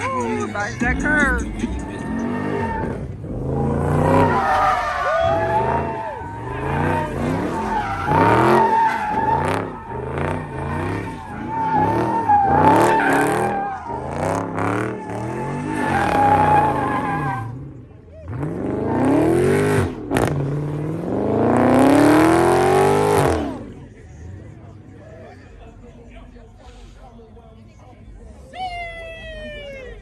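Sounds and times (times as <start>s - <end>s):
tyres squealing: 0.0s - 17.6s
car engine revving: 0.0s - 24.8s.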